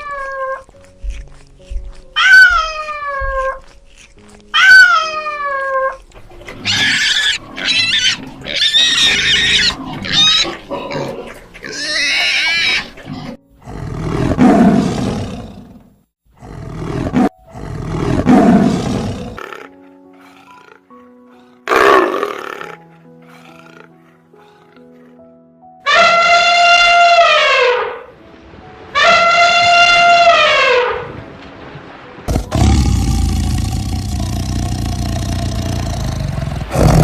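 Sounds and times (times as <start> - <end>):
shrill squealing animal calls: 6.6 - 10.6
deep rough growls: 32.3 - 37.0.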